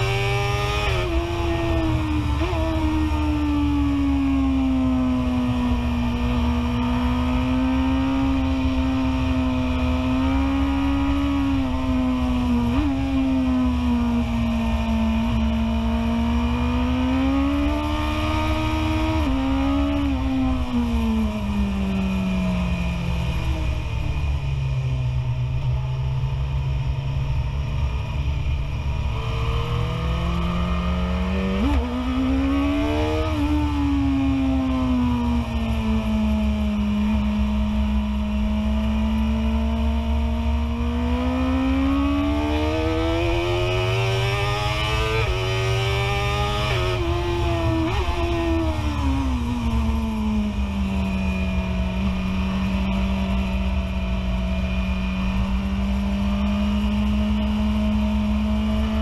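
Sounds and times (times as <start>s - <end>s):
low rush of wind: 0.0s - 59.0s
motorcycle engine at high revs: 0.0s - 59.0s.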